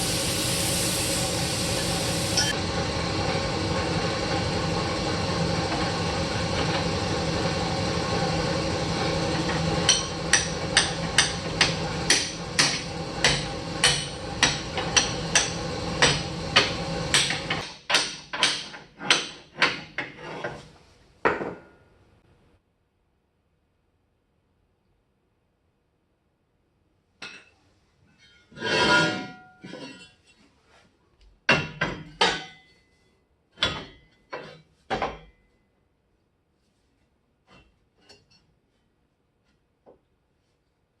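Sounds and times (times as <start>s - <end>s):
steady machine hum: 0.0s - 17.6s.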